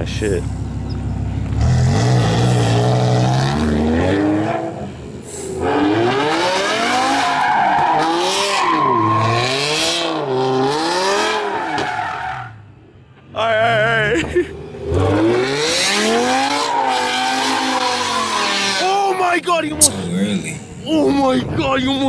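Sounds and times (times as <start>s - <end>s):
car engine revving hard: 0.0s - 11.5s, 14.7s - 18.8s.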